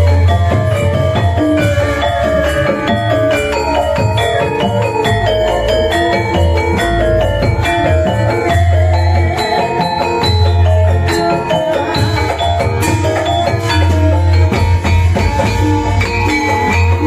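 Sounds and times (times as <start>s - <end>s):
drum: 0.0s - 17.0s
metallophones ringing: 0.0s - 17.0s.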